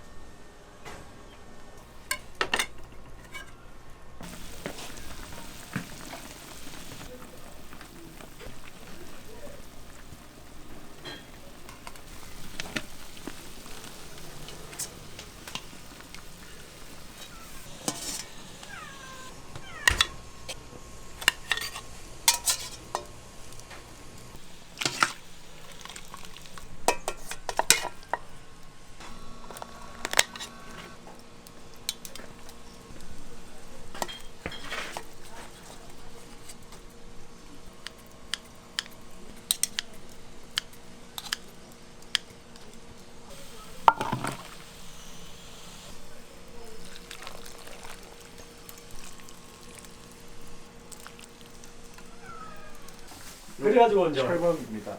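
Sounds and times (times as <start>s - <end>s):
faint sizzle: 0.0s - 54.9s
metal utensils and pans clinking: 2.0s - 3.6s, 4.2s - 23.7s, 24.8s - 28.3s, 33.9s - 36.6s, 43.4s - 44.7s.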